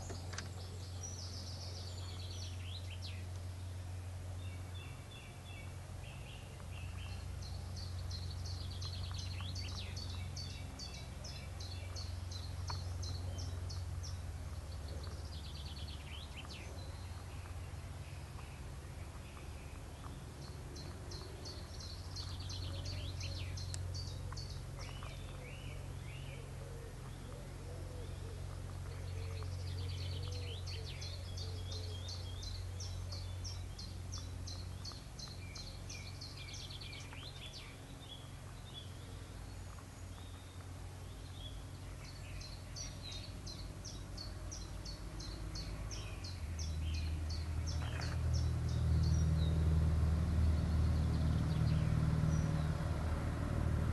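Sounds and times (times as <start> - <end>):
low background rumble: 0.0 - 53.9
songbirds singing: 0.0 - 53.9.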